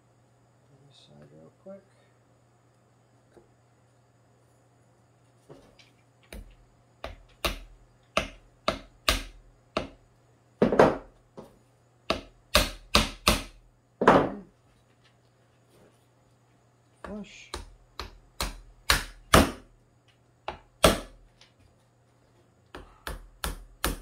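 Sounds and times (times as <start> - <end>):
sharp knocks on wood: 6.3 - 10.0, 12.1 - 14.4, 17.1 - 19.6.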